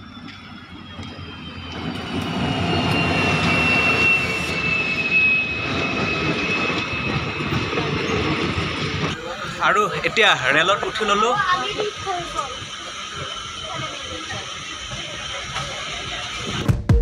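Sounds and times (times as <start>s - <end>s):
high brake squeal: 0.0s - 16.6s
diesel locomotive engine and wheels: 0.0s - 16.8s.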